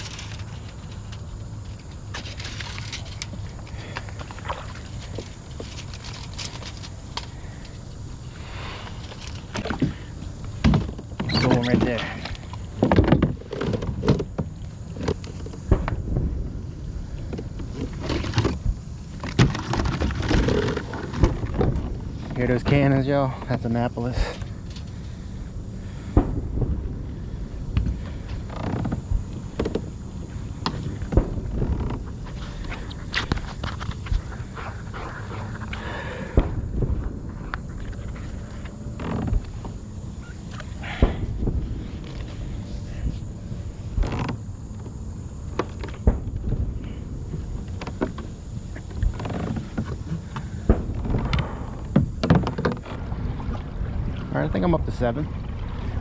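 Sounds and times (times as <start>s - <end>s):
knocks and clatter of gear: 0.0s - 16.0s, 17.2s - 25.2s, 37.4s - 43.1s, 43.9s - 46.5s, 47.4s - 53.0s
steady low rumble: 0.0s - 19.2s, 20.1s - 52.2s, 52.8s - 56.0s.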